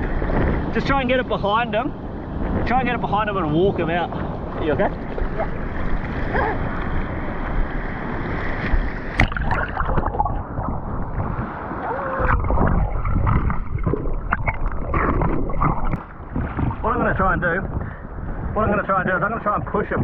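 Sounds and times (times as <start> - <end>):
wind on microphone: 0.0 - 20.0
water sloshing and splashing: 3.8 - 17.8.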